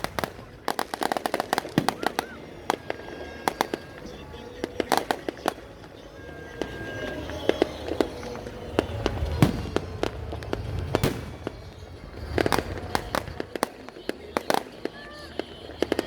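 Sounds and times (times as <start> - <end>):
fireworks bangs and pops: 0.0 - 16.0
low rumble: 8.4 - 13.5.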